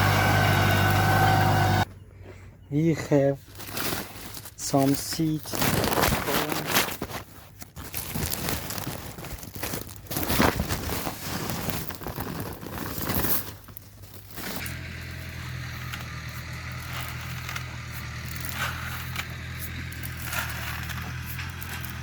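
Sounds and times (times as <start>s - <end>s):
tractor engine humming: 0.0s - 3.4s, 14.6s - 22.0s
rustling and crinkling: 3.0s - 22.0s.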